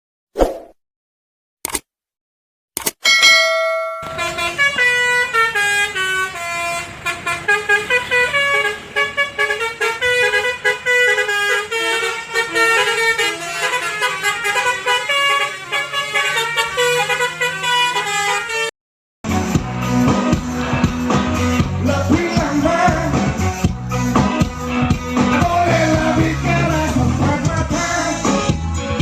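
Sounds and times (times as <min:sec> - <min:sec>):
steady bass: 0:19.3 - 0:29.0.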